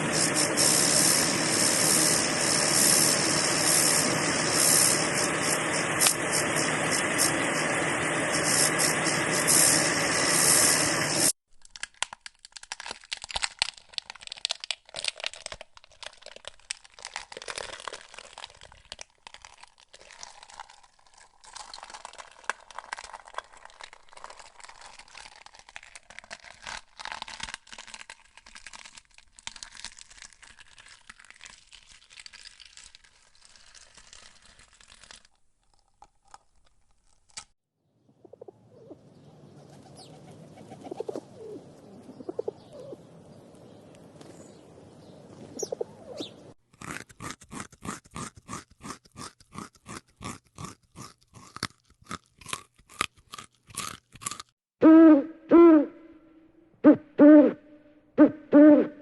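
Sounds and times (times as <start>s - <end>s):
crunching and crinkling clicks: 11.5s - 37.6s
pigeon cooing: 38.2s - 43.1s, 45.4s - 46.5s, 58.2s - 59.0s.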